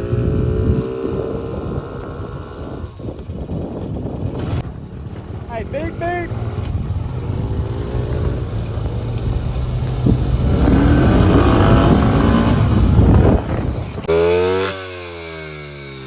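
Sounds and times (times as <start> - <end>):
off-road engines under throttle: 0.0 - 16.0
single engine passing: 4.4 - 16.0.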